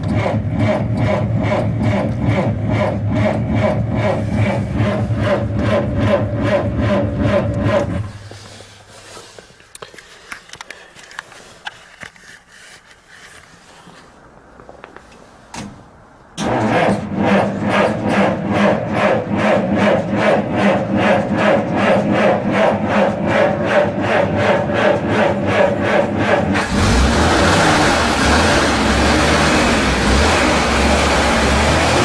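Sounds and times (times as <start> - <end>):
starter cranking engine: 0.0 - 8.2, 16.4 - 32.0.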